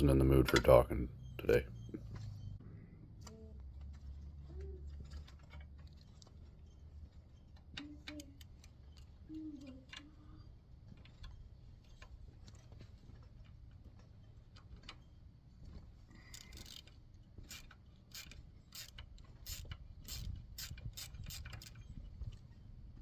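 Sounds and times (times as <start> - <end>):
hand tools clicking on metal: 16.2 - 21.9.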